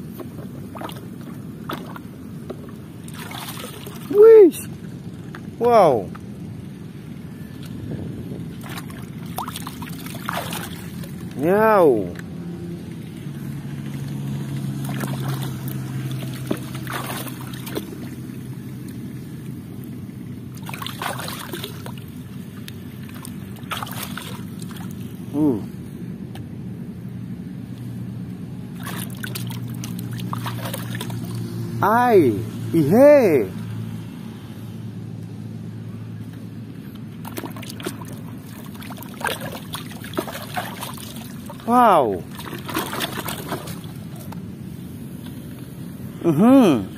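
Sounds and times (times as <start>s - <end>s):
steady low hum: 0.0s - 46.9s
water trickling and splashing: 0.2s - 5.5s, 8.4s - 11.5s, 13.7s - 25.2s, 28.7s - 31.8s, 37.2s - 44.4s.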